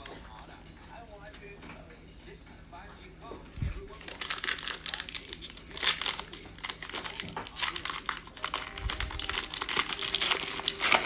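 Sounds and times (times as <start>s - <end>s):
plastic wrapper tearing and crinkling: 3.9s - 11.0s.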